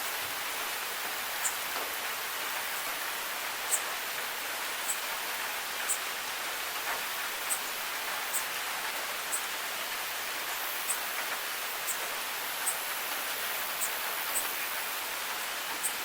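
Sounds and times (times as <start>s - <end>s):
steady rain: 0.0s - 16.0s
high-pitched drip ticks: 1.0s - 2.0s, 3.6s - 6.1s, 6.8s - 9.5s, 10.4s - 16.0s.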